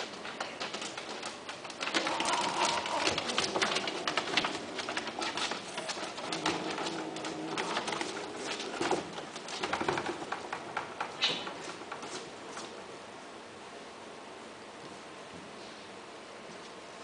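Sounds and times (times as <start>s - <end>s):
small clicks and rustles: 0.0s - 12.8s.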